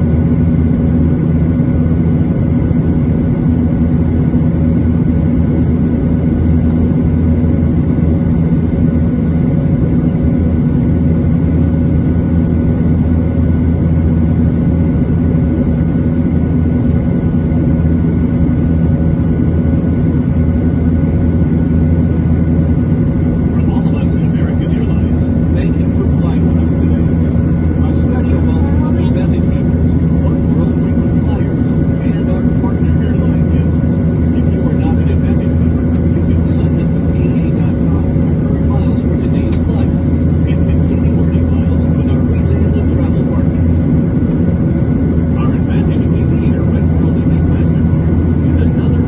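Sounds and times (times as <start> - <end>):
jet engine drone in cabin: 0.0 - 49.0.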